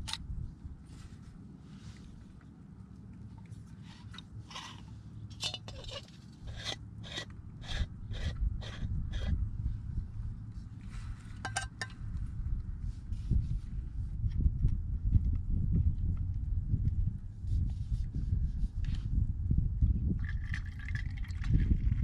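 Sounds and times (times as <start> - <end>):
wind rumble on microphone: 0.0 - 22.0
metal screw cap scraping: 3.9 - 9.4, 11.4 - 12.0.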